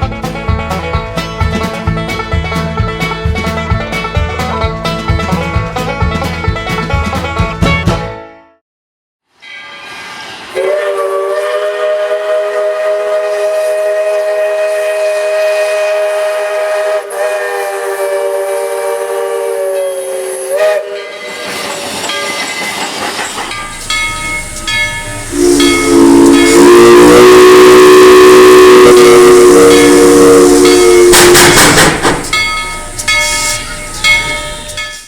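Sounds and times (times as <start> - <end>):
steam hissing: 9.6 - 35.0
steam locomotive whistle: 10.5 - 22.6, 23.6 - 35.0.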